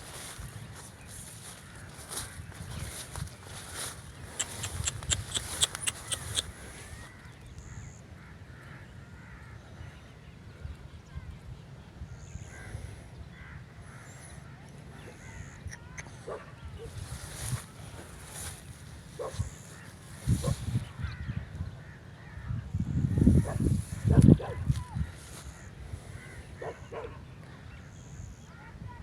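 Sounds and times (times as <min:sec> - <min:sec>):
animal calls: 0:04.2 - 0:07.1.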